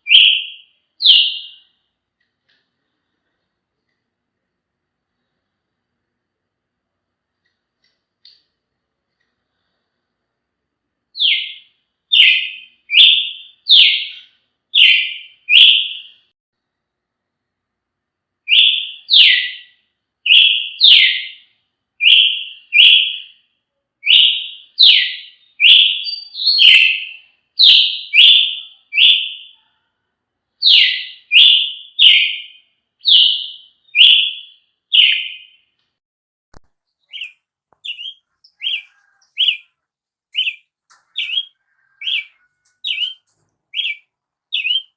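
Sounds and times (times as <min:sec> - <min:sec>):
bird calling harsh notes: 0:00.0 - 0:01.8, 0:11.2 - 0:16.3, 0:18.5 - 0:23.4, 0:24.0 - 0:29.6, 0:30.6 - 0:35.7, 0:37.0 - 0:44.9.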